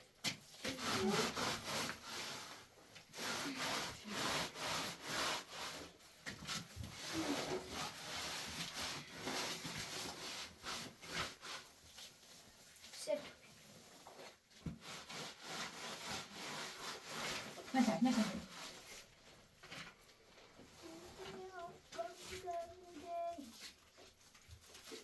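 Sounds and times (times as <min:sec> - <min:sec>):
rough scraping on hard surface: 0:00.6 - 0:12.4, 0:13.5 - 0:19.9.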